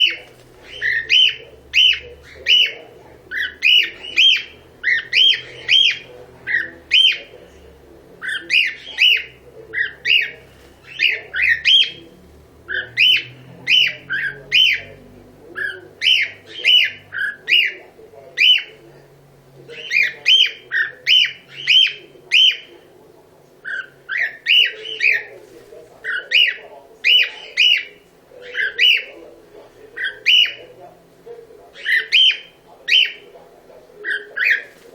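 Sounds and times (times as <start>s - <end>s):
cockatiel chirping calls: 0.0s - 7.3s, 8.2s - 12.1s, 12.7s - 15.0s, 15.6s - 17.8s, 18.4s - 18.8s, 19.7s - 22.8s, 23.6s - 25.4s, 26.0s - 29.2s, 30.0s - 30.8s, 31.7s - 33.3s, 34.0s - 34.8s.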